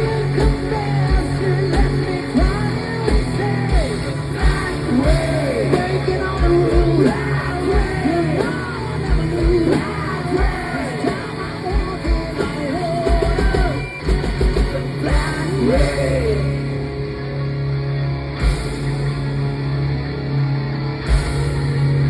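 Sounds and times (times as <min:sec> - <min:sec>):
live hard rock band: 0:00.0 - 0:22.0.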